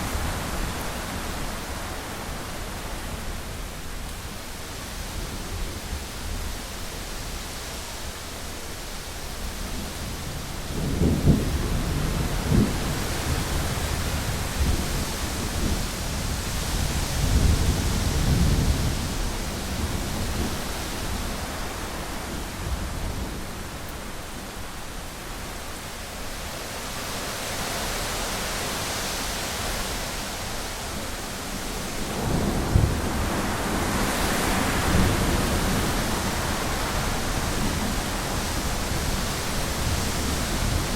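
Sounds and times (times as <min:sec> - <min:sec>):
heavy rain on a window: 0:00.0 - 0:40.9
thunder rumbling: 0:32.0 - 0:40.9.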